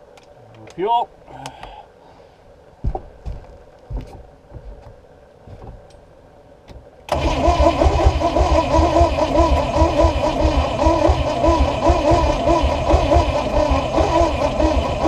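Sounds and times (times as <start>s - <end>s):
starter motor cranking engine: 7.1s - 15.0s.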